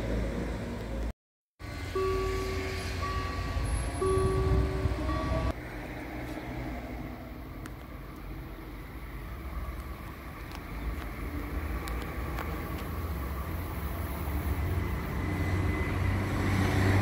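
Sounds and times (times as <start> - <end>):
passing train rumble: 0.0 - 17.0
train whine: 1.6 - 10.3, 12.5 - 17.0.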